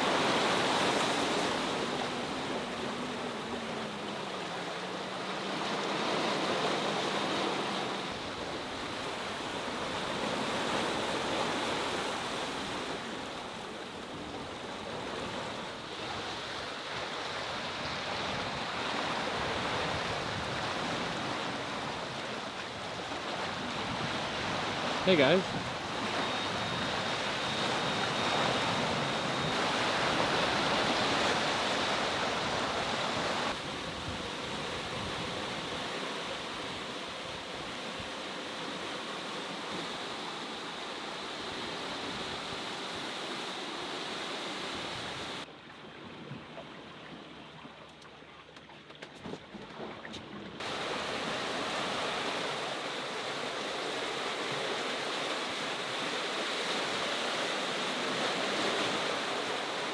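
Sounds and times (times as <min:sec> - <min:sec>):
sea water rushing past boat: 0:00.0 - 0:47.8, 0:49.5 - 0:59.9.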